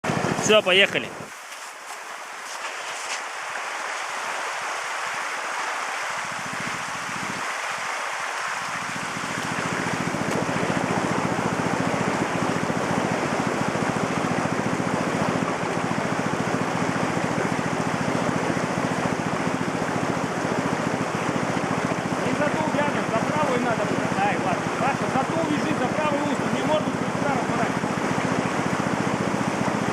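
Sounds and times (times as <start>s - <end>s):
creek water rushing: 0.0s - 29.9s
small engine running: 6.1s - 29.9s.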